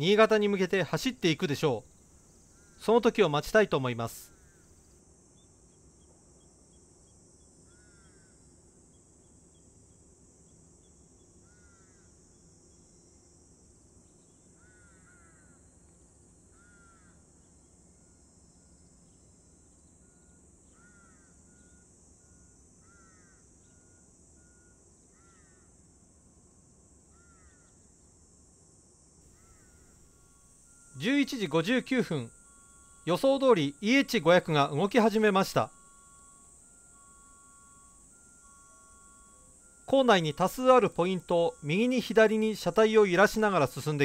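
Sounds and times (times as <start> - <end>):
steady high hiss: 0.0 - 9.2, 29.2 - 44.0.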